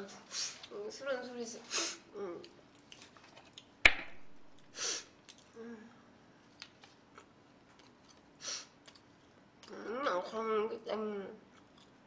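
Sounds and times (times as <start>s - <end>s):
hard object tap: 3.9s - 4.2s
short breathy hiss: 4.7s - 5.2s, 8.4s - 8.8s.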